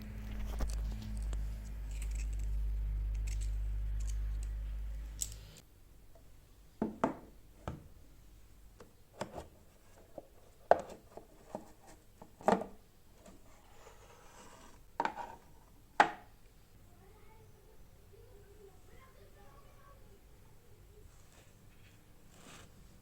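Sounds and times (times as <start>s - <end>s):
low steady hum: 0.0s - 8.8s.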